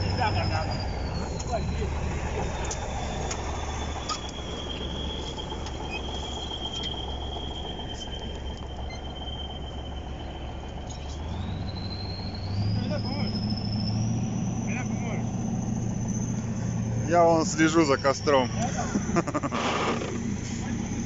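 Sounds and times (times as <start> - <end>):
tractor engine droning with whine: 0.0 - 21.0.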